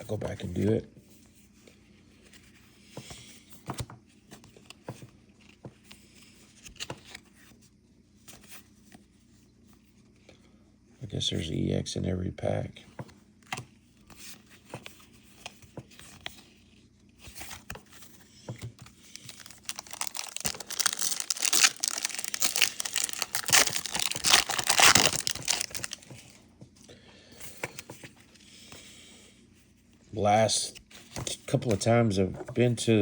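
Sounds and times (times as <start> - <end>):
foil wrapper tearing and crinkling: 19.1 - 26.4.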